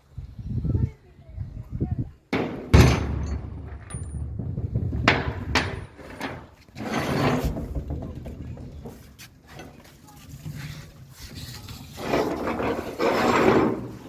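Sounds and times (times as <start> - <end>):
metal rattling and scraping: 2.3 - 14.0
low background rumble: 2.4 - 6.0.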